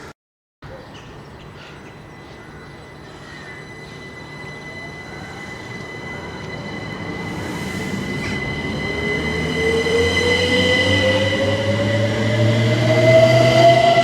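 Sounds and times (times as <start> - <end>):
passenger train approaching: 0.7 - 14.0
high-pitched squeal: 2.1 - 14.0
rising whine: 2.1 - 14.0.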